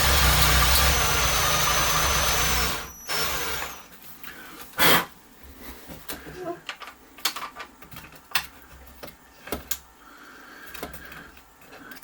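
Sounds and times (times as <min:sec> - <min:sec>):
power drill running: 0:00.0 - 0:03.9.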